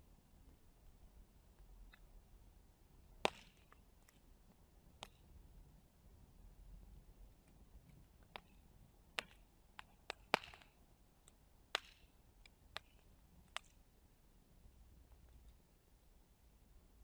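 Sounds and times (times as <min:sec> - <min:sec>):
wood fire crackling and popping: 0:08.0 - 0:13.8.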